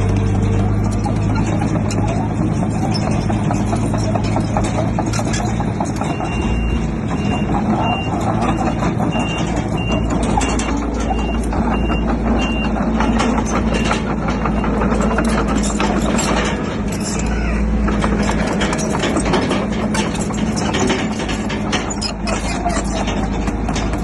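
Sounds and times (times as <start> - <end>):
clattering rock and steel: 0.0 - 24.0
heavy diesel machinery running: 0.0 - 24.0
reversing alarm beeps: 6.0 - 15.3.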